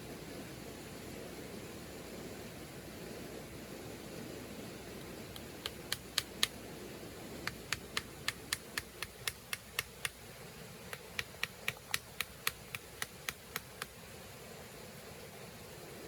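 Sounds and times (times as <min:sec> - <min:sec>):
steady low hiss: 0:00.0 - 0:16.0
rapid light taps: 0:05.0 - 0:06.6, 0:07.4 - 0:10.2, 0:10.9 - 0:14.0.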